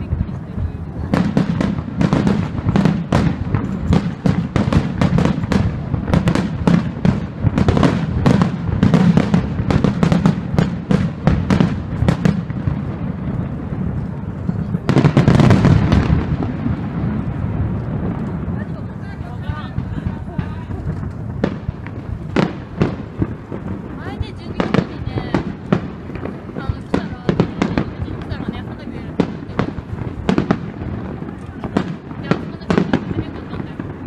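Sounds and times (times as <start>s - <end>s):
fireworks bursting: 0.0s - 34.0s.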